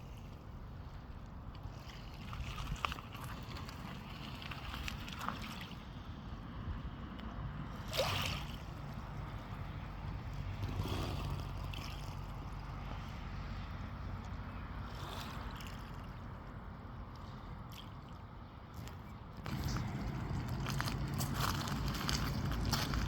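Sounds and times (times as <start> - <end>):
sea water lapping: 0.0 - 6.2, 7.7 - 23.0
steady low rumble: 19.4 - 23.0.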